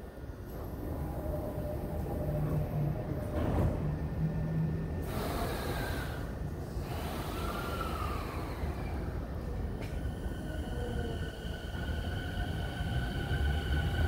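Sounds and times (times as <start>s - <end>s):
electric train pulling away: 0.6s - 9.3s, 9.9s - 14.0s
train hiss: 5.0s - 9.1s.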